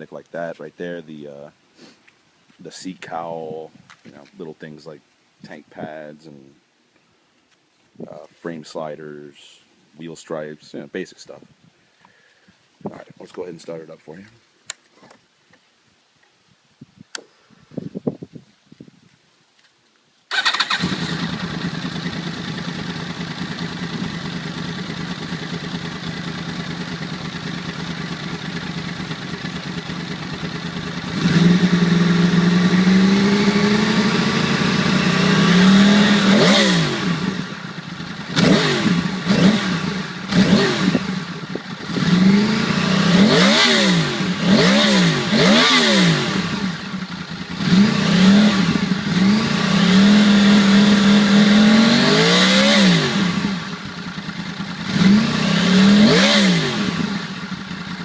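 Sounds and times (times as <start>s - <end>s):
motorcycle engine idling and revving: 20.3s - 58.0s.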